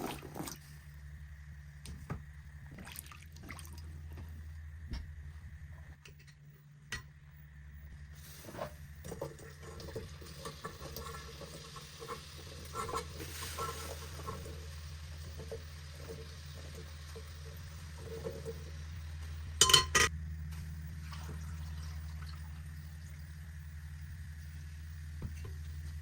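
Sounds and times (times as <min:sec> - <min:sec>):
steady low hum: 0:00.0 - 0:26.0
light sizzling: 0:08.1 - 0:20.1.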